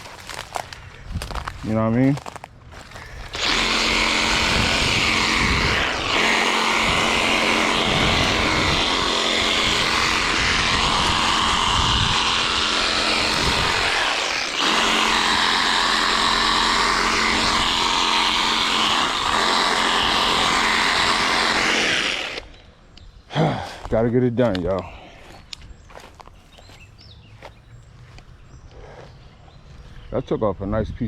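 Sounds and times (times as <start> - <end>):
reciprocating saw cutting branches: 3.0 - 22.6.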